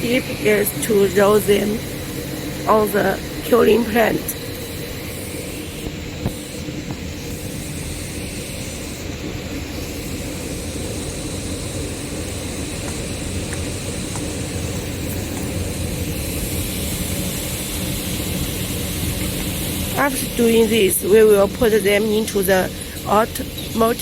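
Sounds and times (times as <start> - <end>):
faint high steady tone: 0.0 - 5.8
industrial machinery drone and hiss: 0.0 - 24.0
low hum: 0.0 - 24.0.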